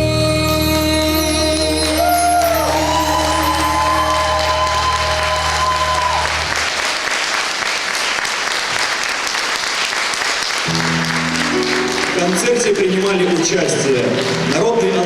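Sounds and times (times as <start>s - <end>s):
held chord of stage music: 0.0s - 7.1s, 10.6s - 15.0s
audience applauding: 1.6s - 15.0s.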